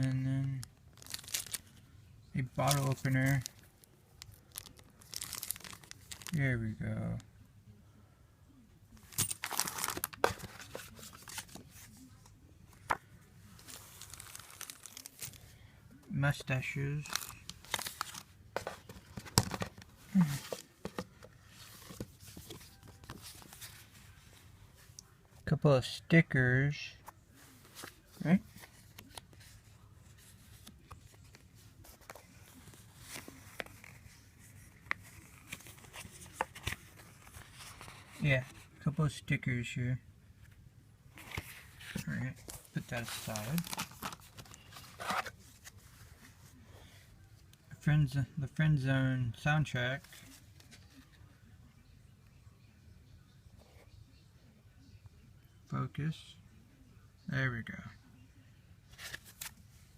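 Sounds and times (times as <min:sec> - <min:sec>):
paper and plastic rustling: 0:00.5 - 0:01.8, 0:02.4 - 0:06.4, 0:09.0 - 0:15.6, 0:17.0 - 0:25.0, 0:27.0 - 0:38.7, 0:41.1 - 0:47.1, 0:58.9 - 0:59.6
packaging crinkling and tearing: 0:00.9 - 0:01.7, 0:02.6 - 0:06.4, 0:09.1 - 0:10.4, 0:13.7 - 0:15.4, 0:42.9 - 0:45.3.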